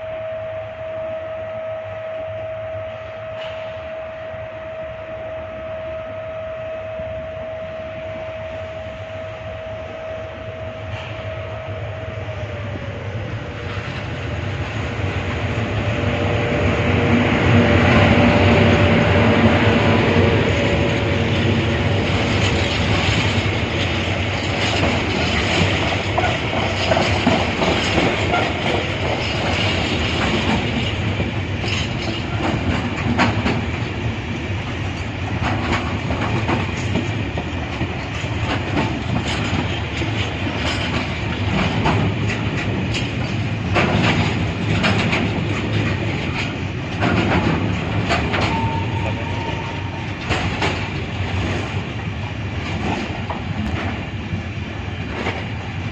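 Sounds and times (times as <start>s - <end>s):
train wheels clattering: 13.6s - 55.9s.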